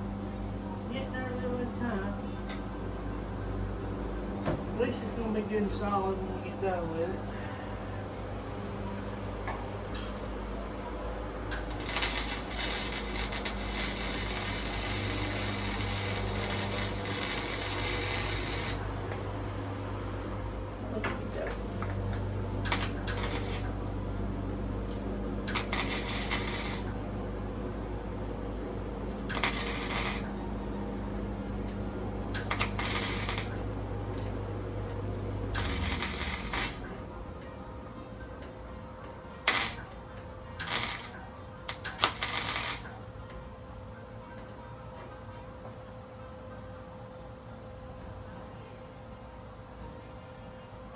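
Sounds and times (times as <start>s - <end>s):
steady electrical hum: 0.0s - 50.9s
welding arc crackling and hissing: 11.5s - 19.3s, 20.9s - 22.0s, 22.6s - 23.9s, 24.8s - 27.2s, 29.1s - 30.4s, 32.3s - 33.8s, 35.4s - 37.0s, 39.5s - 39.9s, 40.6s - 43.0s.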